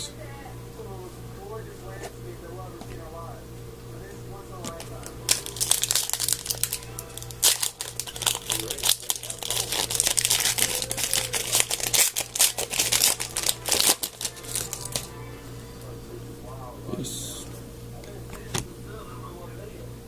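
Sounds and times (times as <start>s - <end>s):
steady low hum: 0.0s - 20.0s
card pack wrappers crinkling: 4.5s - 15.2s.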